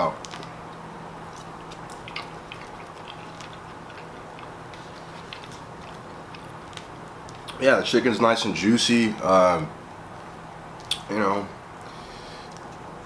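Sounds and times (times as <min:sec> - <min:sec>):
low background hum: 0:00.0 - 0:13.0
person chewing: 0:00.2 - 0:07.6.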